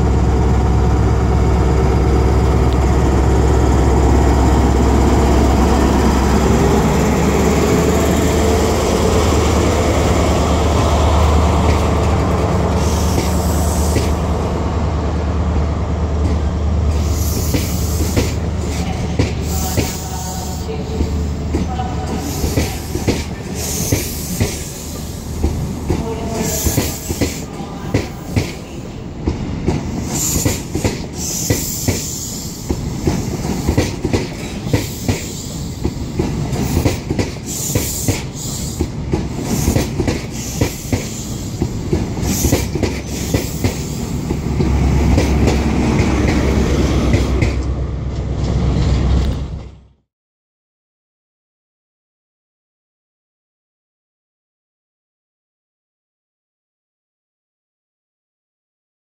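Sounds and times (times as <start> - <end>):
low train rumble: 0.0 - 50.0
train wheels clicking over rail joints: 29.2 - 49.8.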